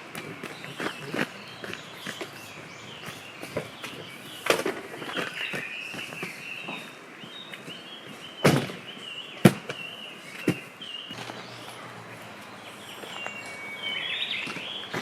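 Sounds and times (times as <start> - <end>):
high wavering chirping: 11.1 - 15.0.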